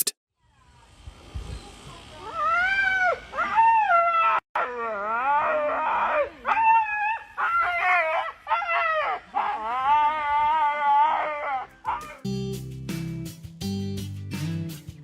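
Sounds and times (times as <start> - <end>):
dog whining and howling: 2.3 - 12.2.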